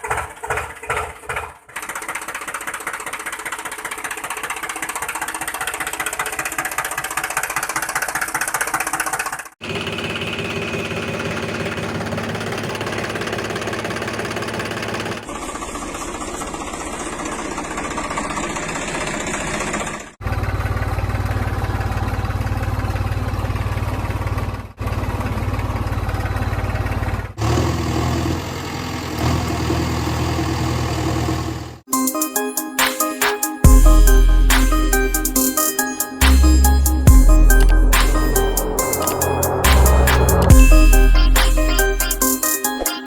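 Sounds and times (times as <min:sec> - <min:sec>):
engines idling: 0:01.9 - 0:27.5, 0:33.6 - 0:42.3.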